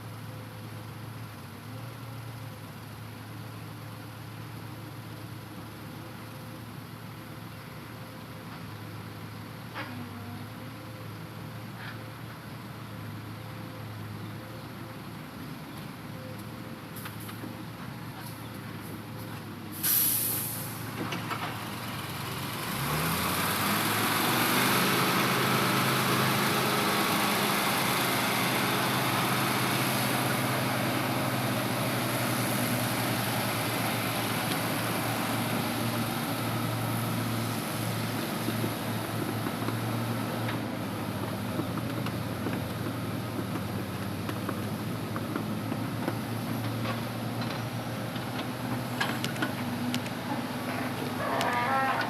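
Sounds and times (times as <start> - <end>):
air brakes hissing: 19.7 - 20.9
diesel truck engine revving: 21.6 - 52.0.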